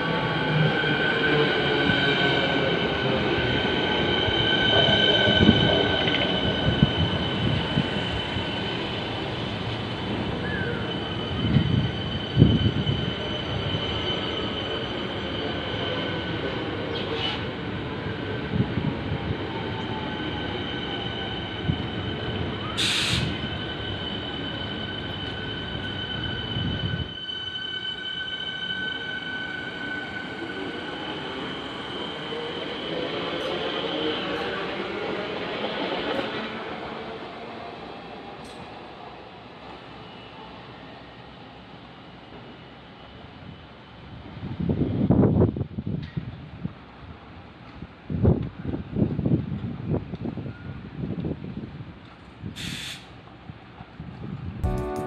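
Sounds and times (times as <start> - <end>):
electric train rumbling: 0.0 - 55.0
high whine or squeal: 10.2 - 16.1
brief hiss: 22.8 - 23.4, 52.6 - 53.1.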